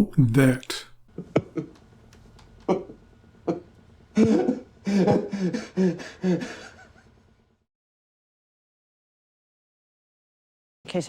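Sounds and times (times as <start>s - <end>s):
person making short vocal sounds: 0.0s - 1.0s.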